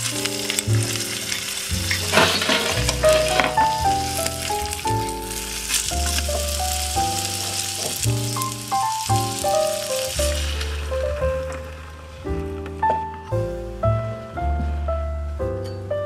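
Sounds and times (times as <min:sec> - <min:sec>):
food sizzling in a pot: 0:00.0 - 0:12.4
background music: 0:00.0 - 0:16.0.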